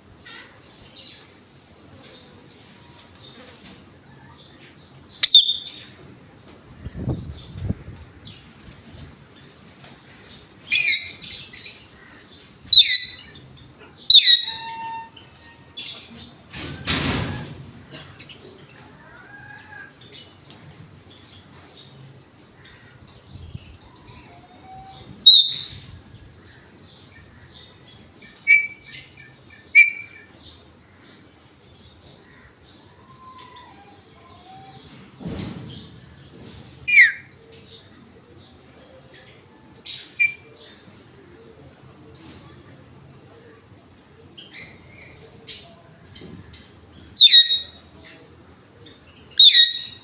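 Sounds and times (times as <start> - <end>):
parrot shrill calls: 5.2 - 5.8, 14.1 - 15.2, 24.9 - 25.7, 47.2 - 47.8, 49.4 - 50.0
parakeet shrill squawk: 14.1 - 15.2, 49.4 - 50.0
faint chirps and whistles: 24.8 - 25.8.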